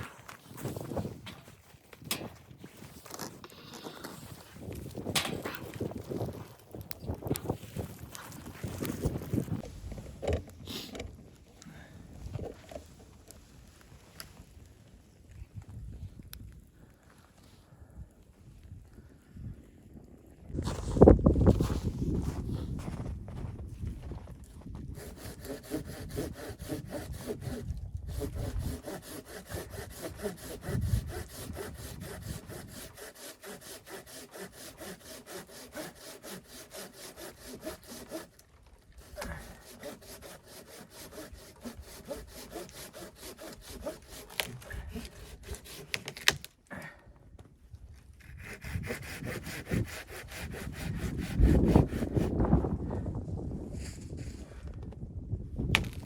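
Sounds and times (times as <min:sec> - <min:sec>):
hand saw cutting wood: 0:04.0 - 0:06.5, 0:24.9 - 0:46.5, 0:48.2 - 0:52.4.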